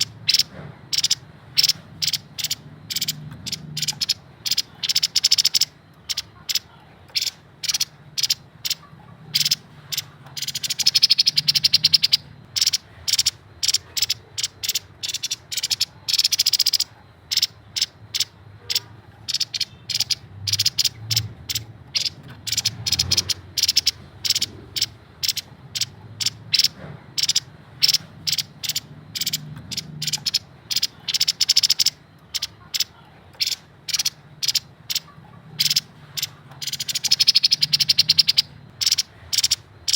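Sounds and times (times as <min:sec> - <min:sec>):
bird calling with sharp high notes: 0:00.0 - 0:39.9
rapid rattling bird trills: 0:00.0 - 0:39.9.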